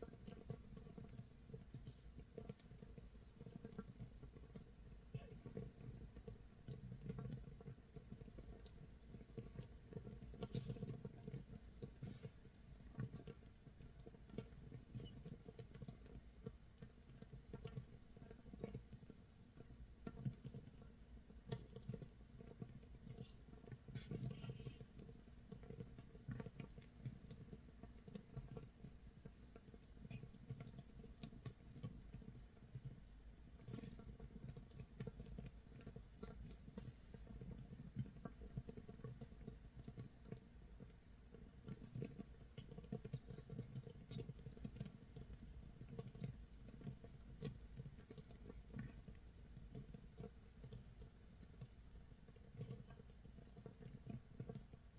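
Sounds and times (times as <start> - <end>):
fermenting bubbles popping: 21.5 - 51.8.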